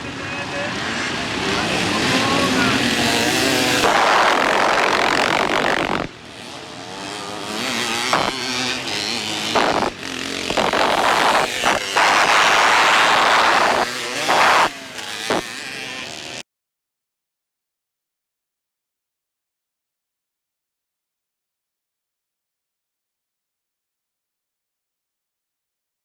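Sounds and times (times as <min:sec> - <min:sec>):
motorcycle engines revving and passing: 0:00.0 - 0:16.4.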